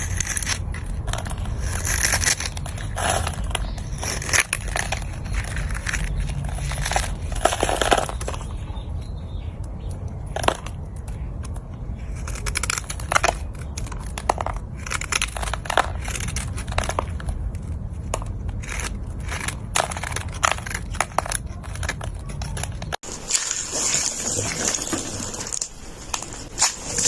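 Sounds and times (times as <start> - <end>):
soap crumbling with crackles: 0.0 - 8.8, 10.1 - 27.0.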